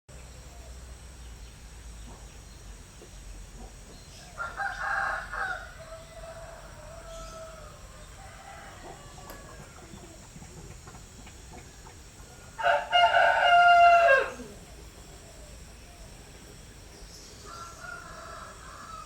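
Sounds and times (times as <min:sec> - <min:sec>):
low background hum: 0:00.1 - 0:19.0
rooster crowing: 0:04.3 - 0:09.9, 0:12.6 - 0:14.6, 0:17.4 - 0:19.0.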